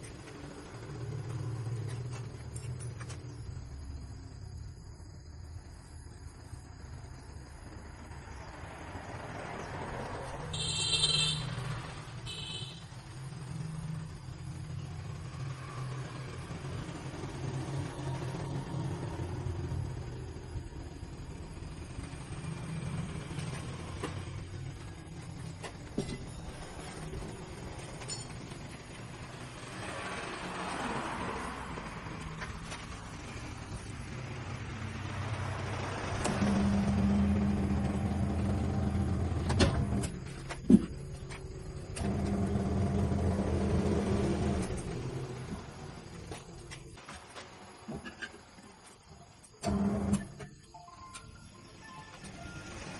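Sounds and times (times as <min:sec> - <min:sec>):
machinery rumbling: 0:13.2 - 0:48.3
low mechanical hum: 0:32.6 - 0:48.4.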